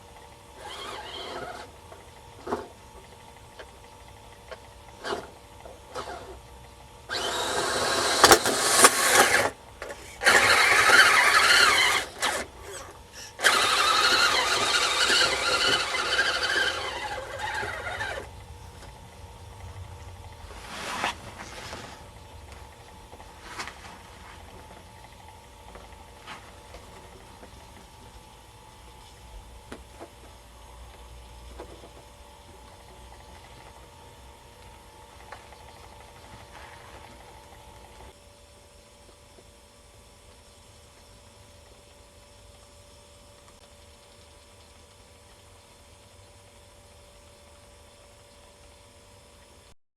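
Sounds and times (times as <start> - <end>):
rc car motor squealing: 0.6 - 1.8, 5.0 - 5.3, 5.9 - 6.4, 7.1 - 18.3.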